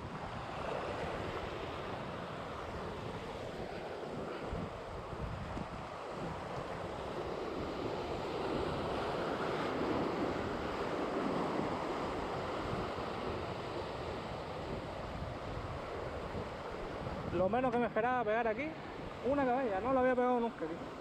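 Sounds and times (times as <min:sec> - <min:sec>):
surf on rocky shore: 0:00.0 - 0:21.0
wind buffeting microphone: 0:00.0 - 0:21.0.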